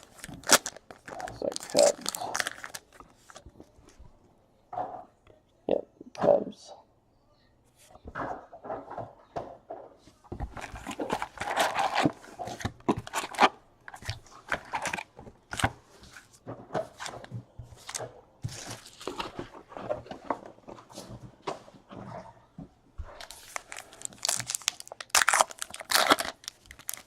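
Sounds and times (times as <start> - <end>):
card pack wrappers tearing: 0.0 - 3.4, 10.6 - 15.7, 23.2 - 27.0.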